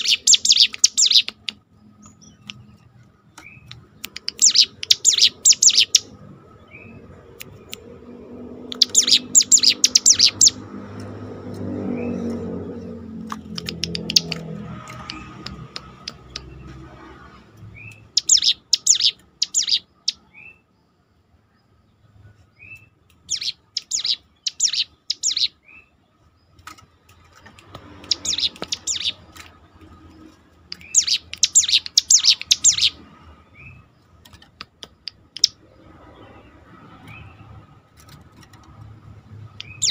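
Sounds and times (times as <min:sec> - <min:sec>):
bird chirps: 0:00.0 - 0:10.7, 0:11.7 - 0:16.8, 0:17.6 - 0:20.9, 0:21.5 - 0:26.8, 0:27.4 - 0:38.2, 0:39.4 - 0:39.9
songbird singing rapid high notes: 0:00.0 - 0:10.7, 0:13.3 - 0:16.7, 0:17.7 - 0:20.8, 0:22.6 - 0:26.0, 0:27.8 - 0:29.8, 0:30.6 - 0:37.5, 0:39.2 - 0:39.9.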